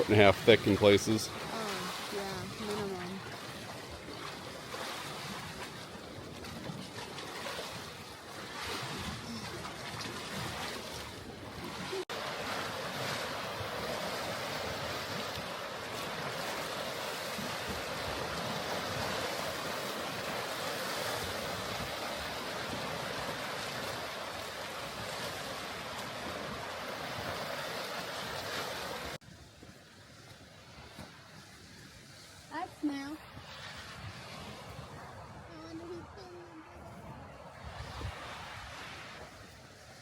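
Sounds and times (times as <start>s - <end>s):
waves washing against rocky shore: 0.0s - 29.2s.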